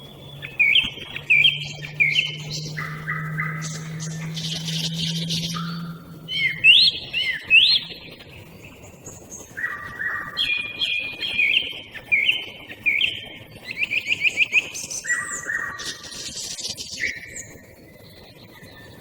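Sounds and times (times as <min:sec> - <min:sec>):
birds singing whistled phrases: 0:00.0 - 0:19.0
fast bird trill: 0:00.2 - 0:08.0.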